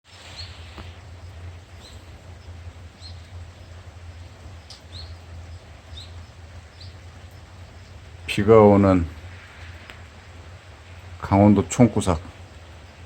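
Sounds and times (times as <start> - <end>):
steady low rumble: 0.1 - 13.0
small bird chirping: 0.2 - 8.2.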